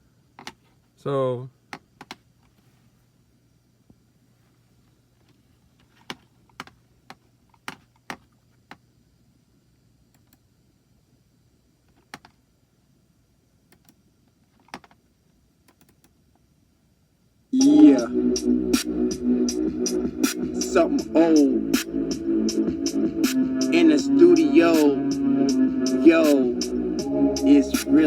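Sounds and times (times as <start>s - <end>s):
mouse and keyboard clicks: 11.9s - 12.4s, 13.7s - 15.0s, 15.7s - 16.2s.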